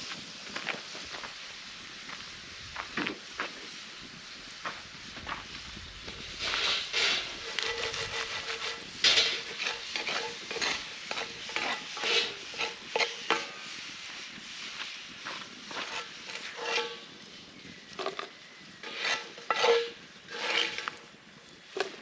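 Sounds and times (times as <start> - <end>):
food frying: 0.0 - 22.0
utensil scraping in a pan: 6.0 - 22.0.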